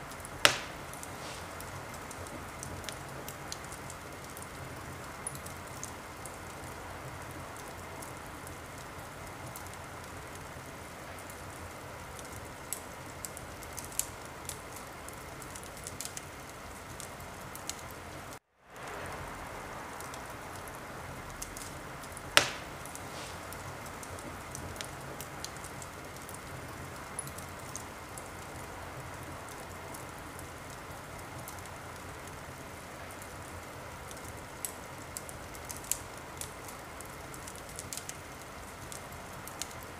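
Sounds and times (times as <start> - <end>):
wood fire crackling: 0.0 - 39.9
loud sharp pop: 0.4 - 1.5, 22.4 - 23.5.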